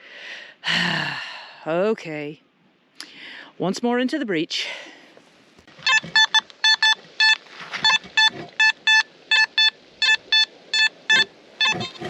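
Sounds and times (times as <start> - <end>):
metal detector short beeps: 5.8 - 12.0.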